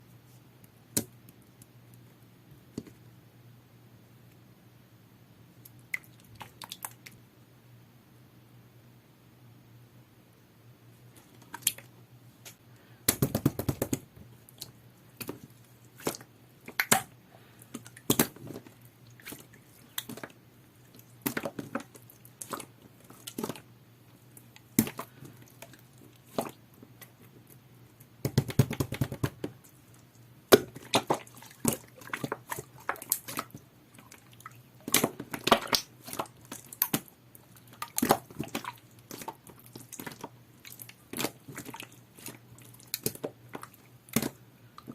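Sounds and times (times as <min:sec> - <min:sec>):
slime squelching: 0:11.1 - 0:27.6, 0:28.3 - 0:44.9.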